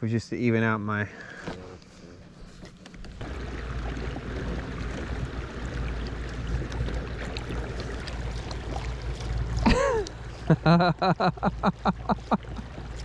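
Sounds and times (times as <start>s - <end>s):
river water rushing: 3.2s - 13.0s.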